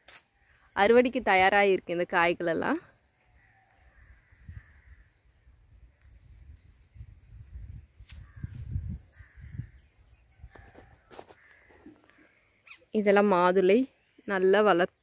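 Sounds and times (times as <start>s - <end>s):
distant birds calling: 3.1s - 14.5s.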